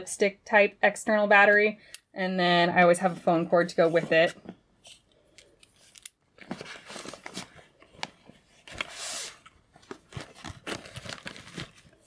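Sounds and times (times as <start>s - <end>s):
rustling and clicks of packing items: 3.9s - 12.0s.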